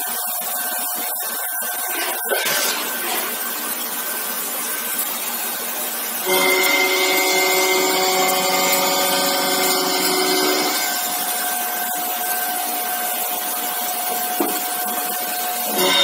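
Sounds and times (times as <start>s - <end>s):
metal milling machine cutting: 6.2s - 16.0s
spindle whine: 6.2s - 16.0s.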